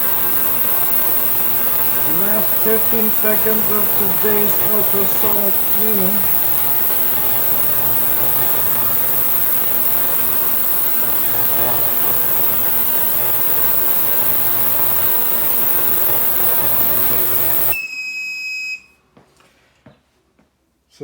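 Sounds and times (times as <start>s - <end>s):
ultrasonic cleaner buzzing: 0.0s - 18.1s
high beep: 16.4s - 18.9s.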